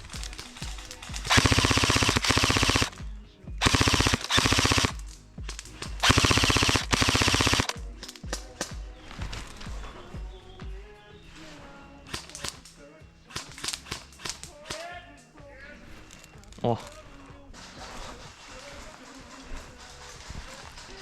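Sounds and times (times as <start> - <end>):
airsoft guns firing full auto: 0.0 - 10.0, 12.1 - 15.0
single airsoft shots: 0.1 - 8.8, 13.3 - 14.9.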